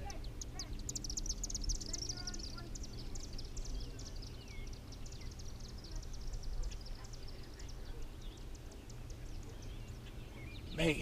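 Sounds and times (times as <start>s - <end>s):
high-pitched chirps and ticks: 0.0s - 7.8s
twittering calls: 0.0s - 11.0s.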